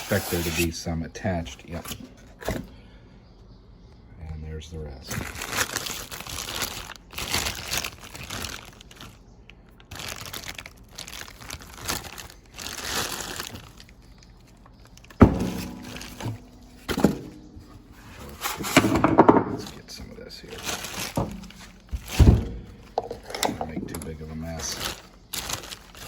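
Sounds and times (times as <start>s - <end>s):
packaging rustling and crinkling: 5.1s - 26.0s
part knocking when set down: 15.2s - 17.4s, 18.5s - 19.8s, 21.2s - 24.0s
metal part clunk: 15.2s - 19.8s, 21.2s - 24.1s.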